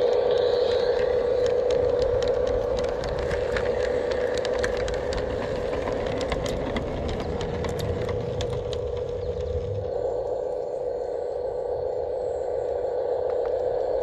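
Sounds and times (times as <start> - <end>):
sharp clicks and rattles: 0.0 - 9.9.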